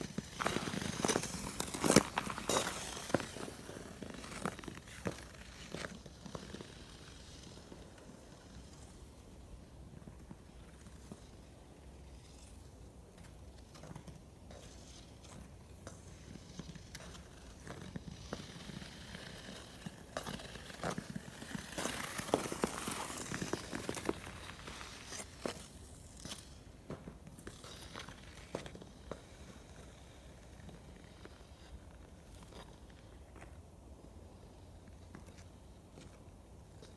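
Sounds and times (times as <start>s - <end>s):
ice crunching and crackling: 0.0s - 7.5s, 17.4s - 26.6s.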